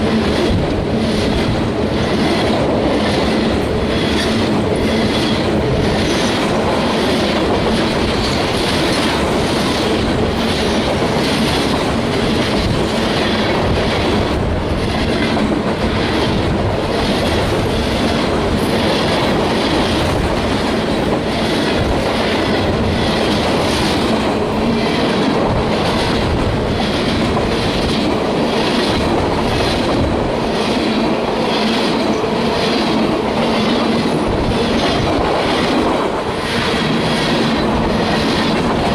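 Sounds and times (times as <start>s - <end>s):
freight train rumbling past: 0.0s - 38.9s.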